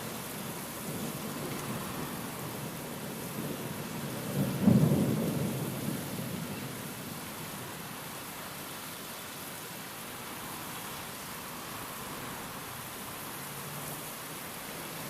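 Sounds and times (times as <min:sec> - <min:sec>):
steady rain: 0:00.0 - 0:15.0
thunder rumbling: 0:00.8 - 0:07.1.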